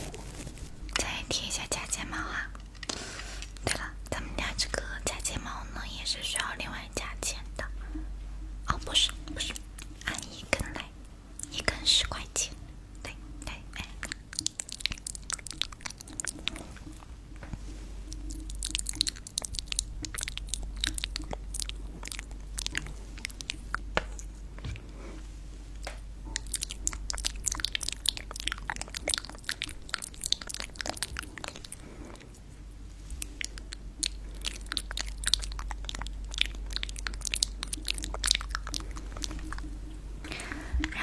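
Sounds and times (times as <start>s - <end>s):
crunching crackles and clicks: 13.0s - 25.0s, 25.7s - 41.0s.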